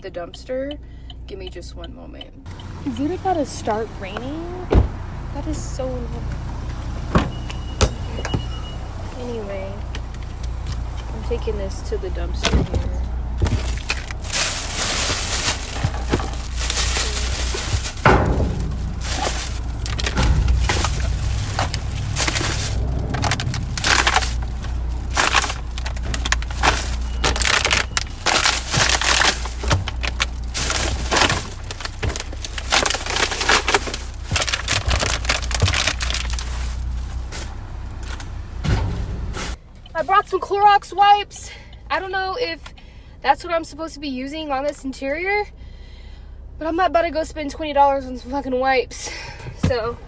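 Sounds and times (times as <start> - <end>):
low rumble: 2.5 - 39.7
plastic bag crackling: 10.3 - 38.6.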